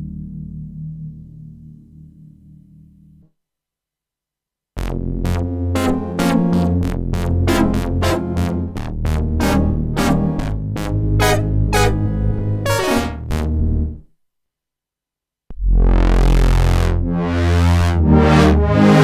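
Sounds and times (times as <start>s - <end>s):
heavy synth bass line: 4.8s - 14.0s, 15.5s - 19.0s
plucked synth notes: 4.8s - 14.0s.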